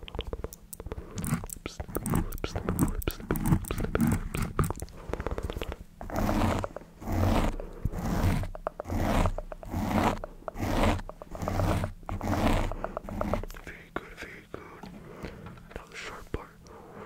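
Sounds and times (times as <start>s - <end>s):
wet mouth clicks and pops: 0.0s - 5.9s.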